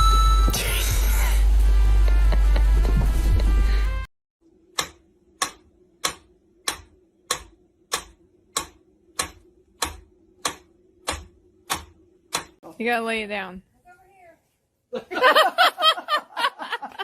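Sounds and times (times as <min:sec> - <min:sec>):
music: 0:00.0 - 0:04.1
steady ticking: 0:04.7 - 0:12.6.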